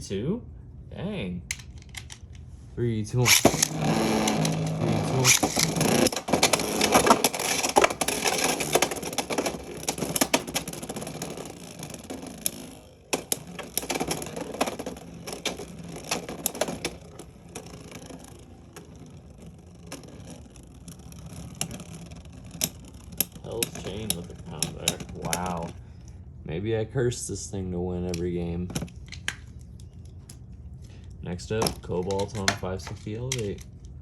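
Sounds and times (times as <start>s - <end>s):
spinning tops colliding: 3.2s - 25.7s.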